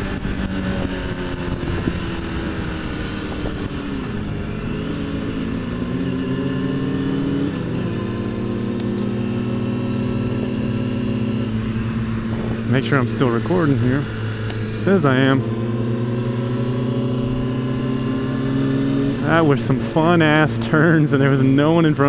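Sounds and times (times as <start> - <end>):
wind noise: 0.0 - 6.4, 10.2 - 12.9
motorcycle engine running: 0.0 - 22.0.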